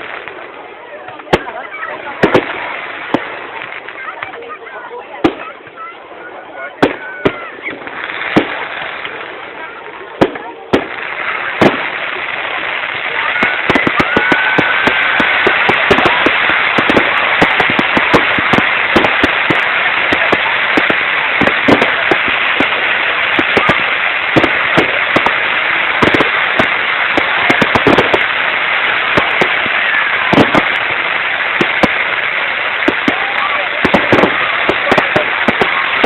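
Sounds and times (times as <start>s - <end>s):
fireworks bangs: 0.0s - 36.0s
fireworks crackling: 0.0s - 36.0s
faint firework whistle: 13.2s - 16.1s.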